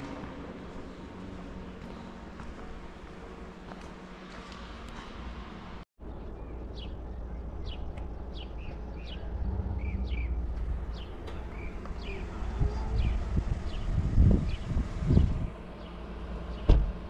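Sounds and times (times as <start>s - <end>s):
small birds chirping: 6.0s - 16.7s
wind on microphone: 12.0s - 15.5s.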